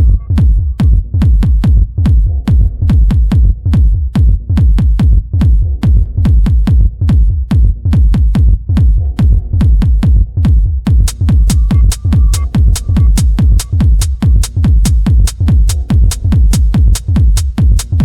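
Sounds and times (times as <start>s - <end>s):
deep kick drum thumps: 0.0s - 18.0s
sharp percussion hits: 10.9s - 18.0s.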